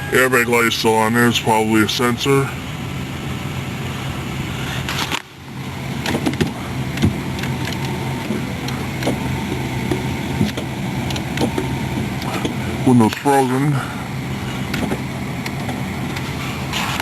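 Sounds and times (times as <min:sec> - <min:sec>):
car engine idling: 0:00.0 - 0:17.0
sharp clicks inside vehicle: 0:04.6 - 0:13.6, 0:14.4 - 0:17.0.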